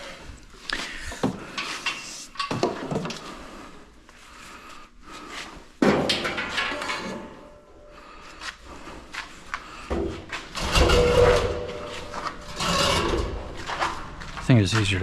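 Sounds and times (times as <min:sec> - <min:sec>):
clattering scrape: 0:10.0 - 0:14.2.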